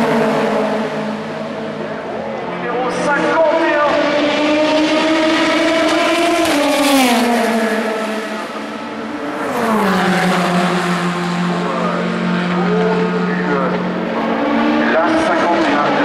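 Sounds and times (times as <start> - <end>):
race car engines passing: 0.0 - 16.0.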